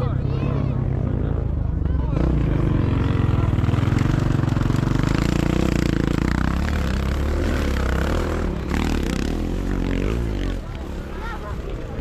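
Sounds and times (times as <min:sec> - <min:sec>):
motorcycle engines revving high: 0:00.0 - 0:12.0.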